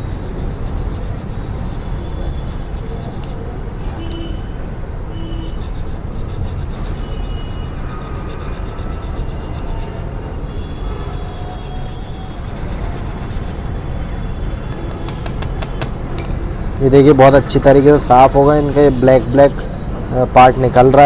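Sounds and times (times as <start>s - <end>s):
brake pad scraping on sandpaper: 0.0s - 4.1s, 5.4s - 13.7s, 17.0s - 19.9s.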